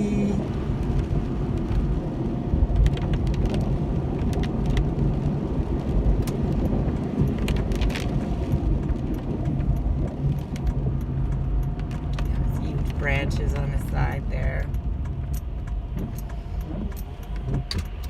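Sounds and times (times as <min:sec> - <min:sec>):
car engine and road rumble: 0:00.0 - 0:18.0
sharp clicks and ticks: 0:06.1 - 0:18.0.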